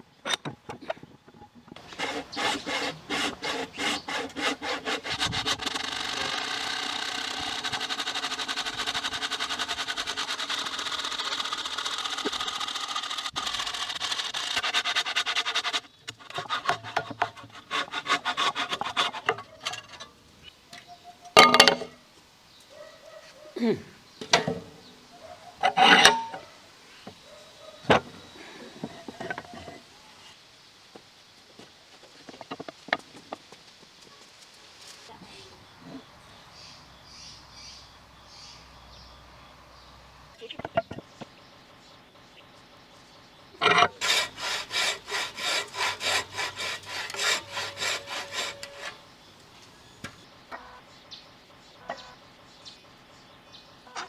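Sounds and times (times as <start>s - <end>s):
hand saw cutting wood: 1.8s - 20.2s, 24.2s - 24.9s, 25.6s - 29.9s, 43.6s - 50.2s.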